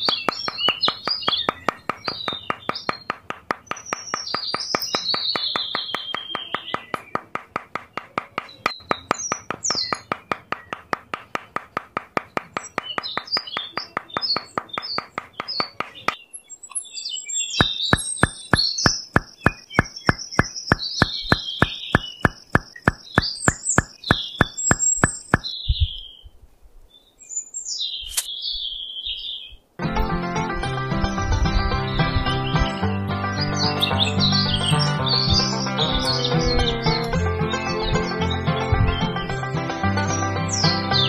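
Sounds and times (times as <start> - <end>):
birds chirping: 0.0 - 29.7, 31.0 - 41.0
rhythmic tapping music beat: 17.6 - 25.5, 30.2 - 41.0.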